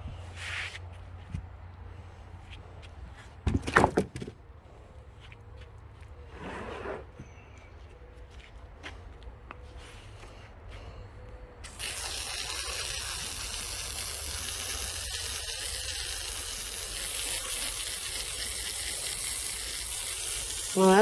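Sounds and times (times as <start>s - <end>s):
hose spraying hiss: 11.7s - 21.0s.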